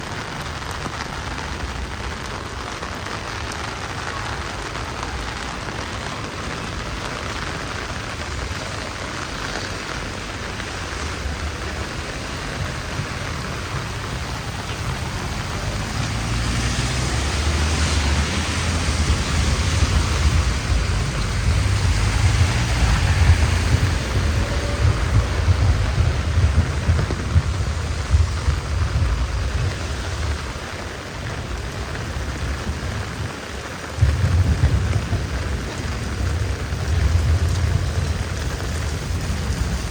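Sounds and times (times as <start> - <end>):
heavy rain falling: 0.0 - 39.9
low rumble: 18.0 - 30.7.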